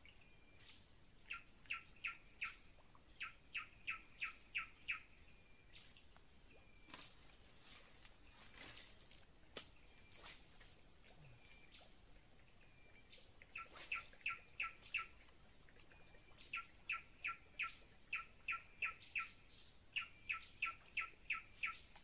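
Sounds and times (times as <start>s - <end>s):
faint high-pitched whine: 0.0s - 22.0s.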